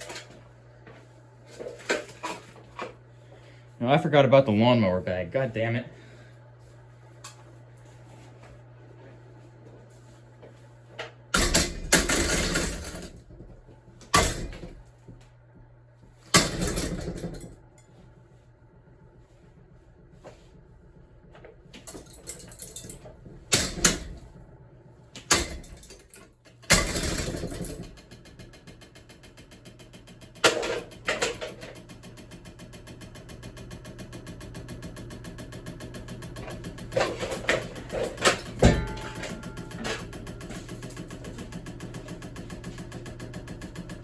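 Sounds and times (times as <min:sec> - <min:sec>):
ceiling fan humming and rattling: 0:00.0 - 0:44.0.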